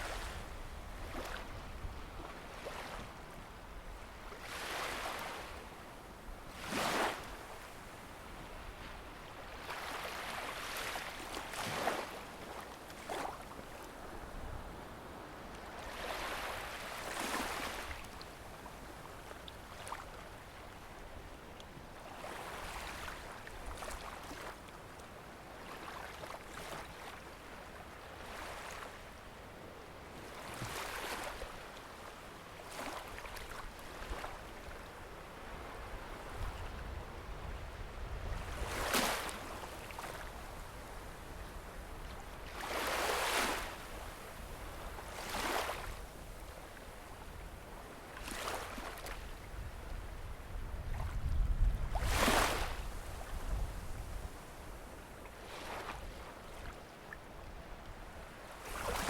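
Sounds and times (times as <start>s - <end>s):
small waves breaking on sand: 0.0s - 3.4s, 4.1s - 5.8s, 6.5s - 20.9s, 21.9s - 24.7s, 25.3s - 29.1s, 30.0s - 59.0s
wind rumble on microphone: 0.0s - 4.4s, 35.3s - 46.5s, 49.1s - 55.0s.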